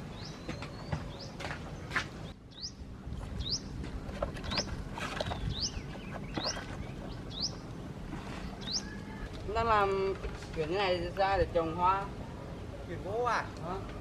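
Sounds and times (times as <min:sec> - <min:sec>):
small bird chirping: 0:02.2 - 0:02.8, 0:04.4 - 0:07.7, 0:08.4 - 0:09.3
knocks and rustles: 0:03.8 - 0:07.2.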